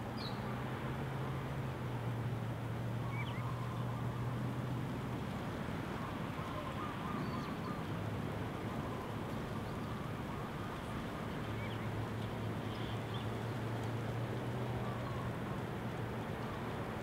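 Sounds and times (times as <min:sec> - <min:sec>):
faint bird chirps and calls: 0:03.0 - 0:04.0, 0:06.0 - 0:07.9.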